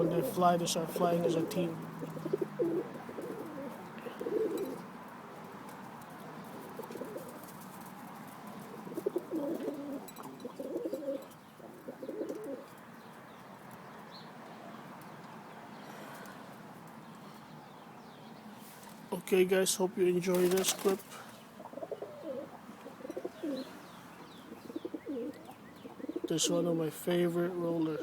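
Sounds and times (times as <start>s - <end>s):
pigeons cooing: 0.0s - 13.1s, 20.1s - 28.0s.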